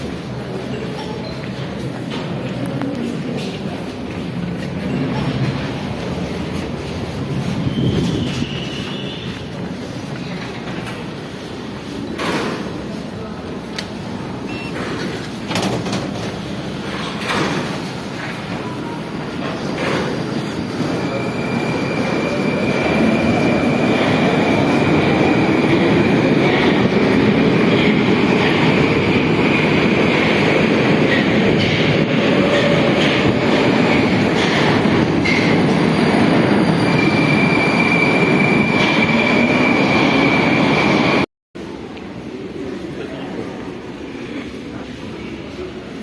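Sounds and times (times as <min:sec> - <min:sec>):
high wheel squeal: 0:35.2 - 0:40.8.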